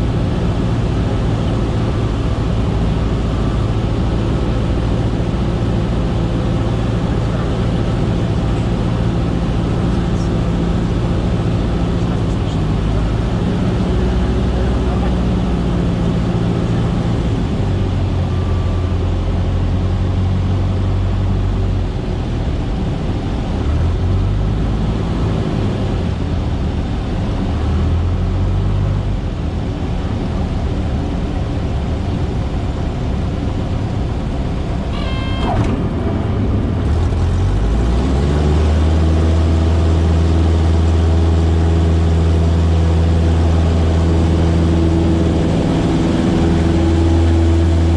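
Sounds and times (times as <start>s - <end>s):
light aircraft engine and propeller drone: 0.0s - 47.9s
short high tone: 34.9s - 36.5s.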